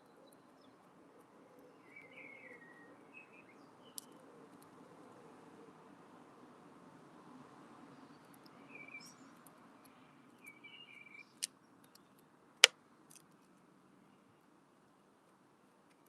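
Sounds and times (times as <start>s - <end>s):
faint bird chirps: 0.0s - 4.4s, 8.0s - 12.2s.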